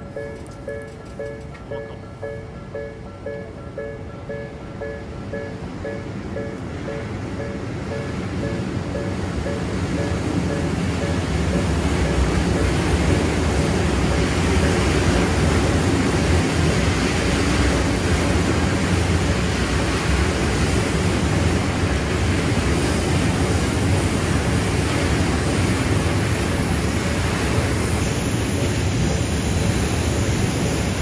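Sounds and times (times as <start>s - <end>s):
steel train wheels on rails: 0.0s - 31.0s.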